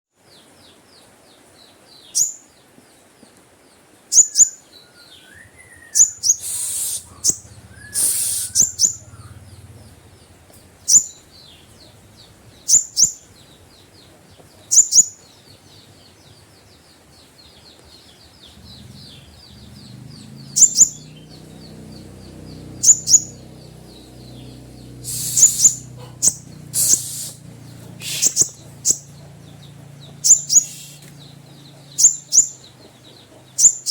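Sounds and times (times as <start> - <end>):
bird high sharp chirps: 4.1 - 9.6, 10.8 - 14.0, 14.7 - 15.3, 18.5 - 29.3, 30.1 - 32.8
high twittering: 4.2 - 16.7, 18.1 - 33.9
low hum: 5.4 - 14.6, 17.8 - 32.3.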